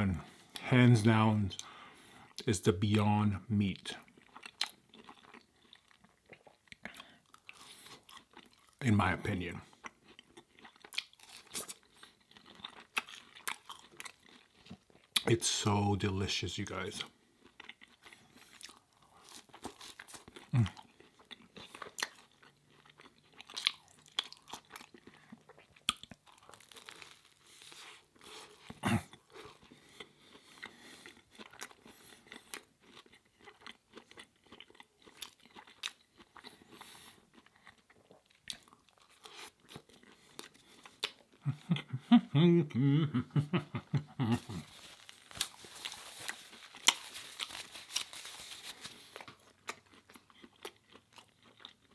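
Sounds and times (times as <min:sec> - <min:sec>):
food being chewed: 0:03.9 - 0:08.8, 0:09.6 - 0:15.3, 0:17.0 - 0:42.0, 0:43.8 - 0:51.9
person mumbling: 0:20.5 - 0:20.8, 0:42.3 - 0:43.4, 0:44.1 - 0:44.7.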